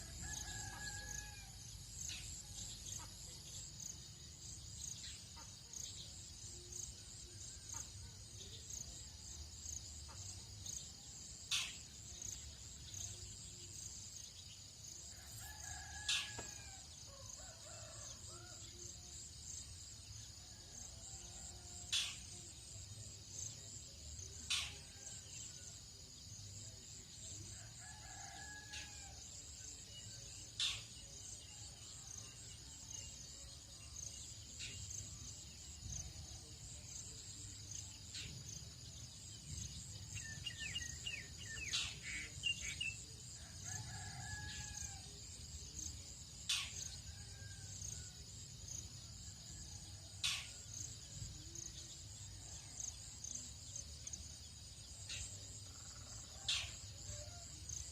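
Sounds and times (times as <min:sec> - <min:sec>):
distant rooster crowing: 0:00.0 - 0:01.6, 0:15.2 - 0:18.6
high insect chorus: 0:00.0 - 0:57.9.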